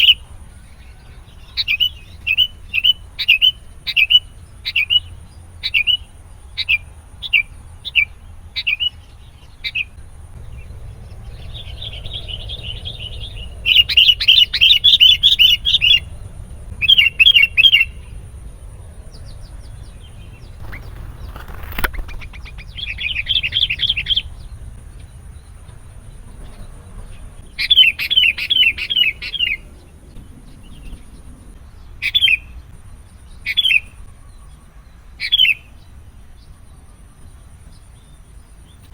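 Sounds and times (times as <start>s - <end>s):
bird calling with chattering notes: 0.0s - 29.8s.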